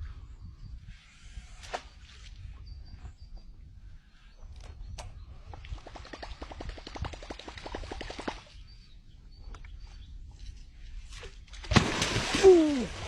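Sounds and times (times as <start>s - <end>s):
loud water splash: 11.7s - 13.0s.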